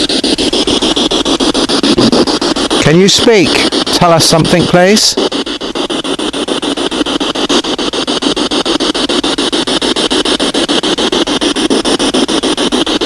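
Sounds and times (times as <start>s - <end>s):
radio static stuttering: 0.0s - 13.0s.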